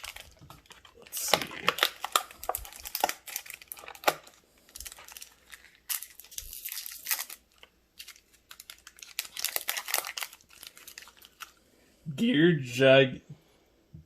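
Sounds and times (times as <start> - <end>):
foil pack crinkling and tearing: 0.0 - 11.6.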